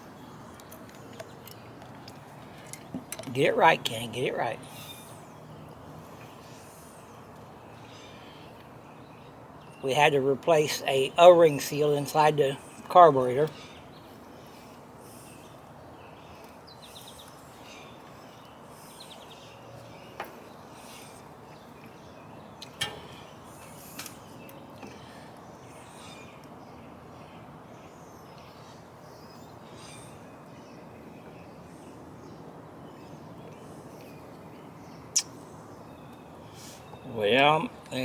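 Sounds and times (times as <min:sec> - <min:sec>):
outdoor background hiss: 0:00.0 - 0:38.0.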